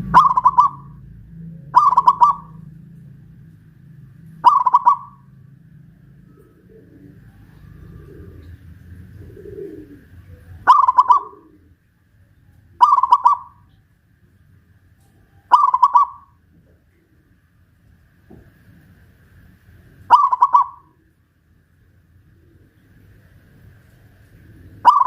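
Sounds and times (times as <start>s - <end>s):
dove cooing: 0.0s - 3.2s, 4.0s - 11.8s, 12.6s - 13.8s, 15.2s - 17.4s, 20.1s - 21.2s, 22.2s - 23.4s, 24.1s - 25.0s.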